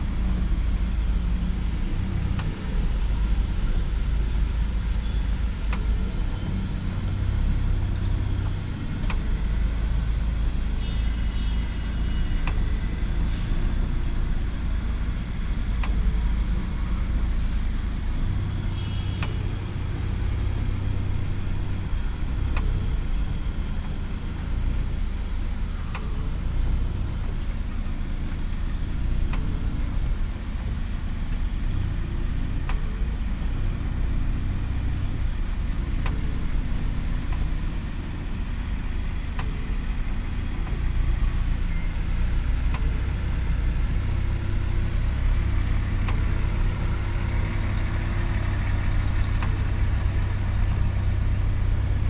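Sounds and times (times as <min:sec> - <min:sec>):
engine deep rumble: 0:00.0 - 0:52.0
faint clicks: 0:34.6 - 0:52.0.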